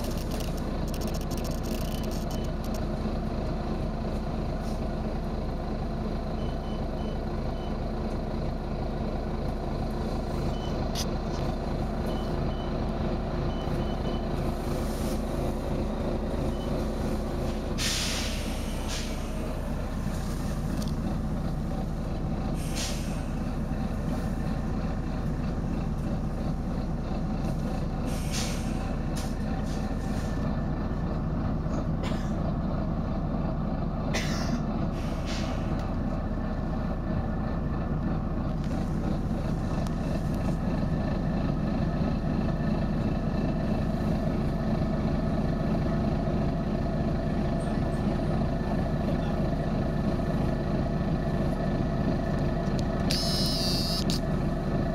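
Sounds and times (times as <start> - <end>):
diesel bus engine running: 0.0 - 54.9
compressed air hisses: 17.8 - 19.5, 22.6 - 23.3, 28.1 - 28.8.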